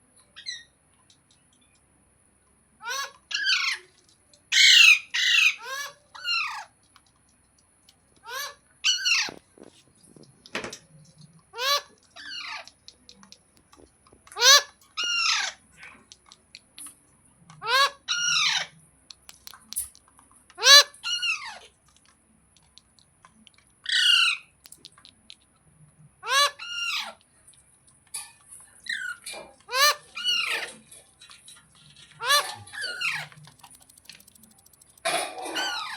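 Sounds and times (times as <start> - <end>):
parakeet squawking: 2.8 - 3.9, 4.5 - 6.7, 8.2 - 9.4, 11.5 - 12.8, 14.3 - 16.0, 17.6 - 18.8, 20.6 - 21.7, 23.8 - 25.3, 26.2 - 27.2, 28.8 - 31.0, 32.0 - 35.9.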